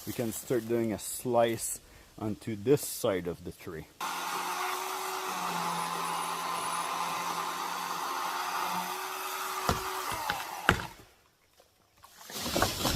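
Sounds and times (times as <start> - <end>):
electric chainsaw cutting wood: 4.0 - 11.0.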